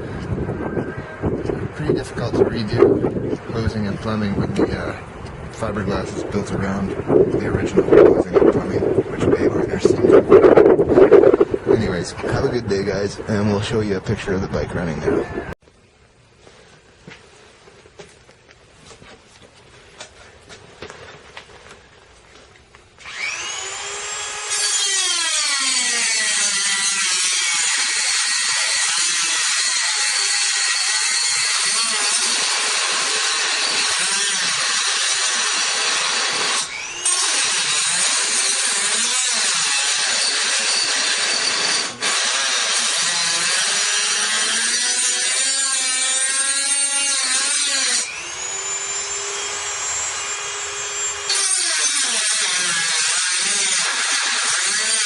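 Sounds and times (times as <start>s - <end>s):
electric grinder on steel: 23.0s - 55.0s.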